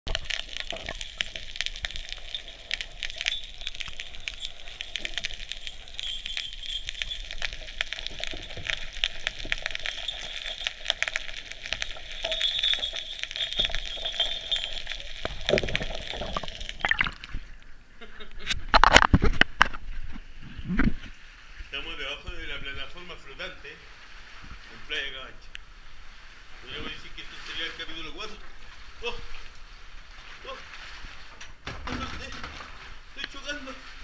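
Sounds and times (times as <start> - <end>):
underwater crackling clicks: 0.1 - 17.4.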